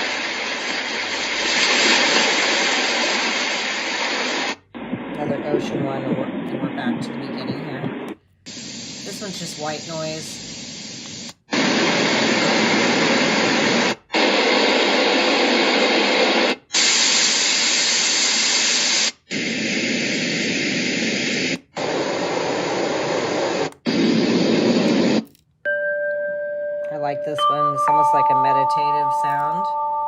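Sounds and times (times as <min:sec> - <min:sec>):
white noise hiss from speaker: 0:00.0 - 0:16.6.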